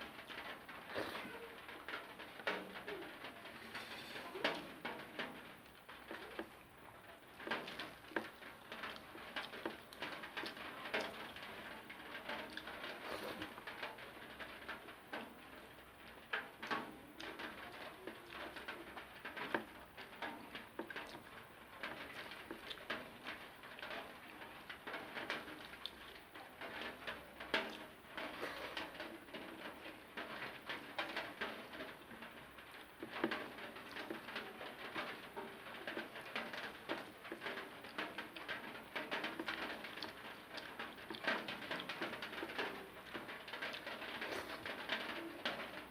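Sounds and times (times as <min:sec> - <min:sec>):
chewing and wet mouth noises: 0:12.4 - 0:13.6, 0:41.0 - 0:42.6, 0:43.7 - 0:44.8.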